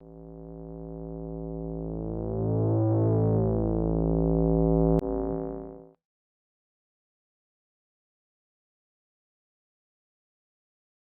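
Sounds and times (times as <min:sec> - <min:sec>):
synthesizer chord: 0:00.0 - 0:05.9.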